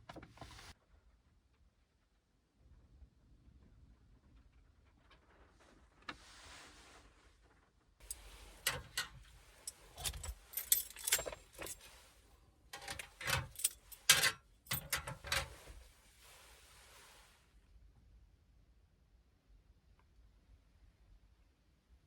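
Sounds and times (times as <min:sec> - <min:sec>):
faint hiss: 0:15.6 - 0:17.6.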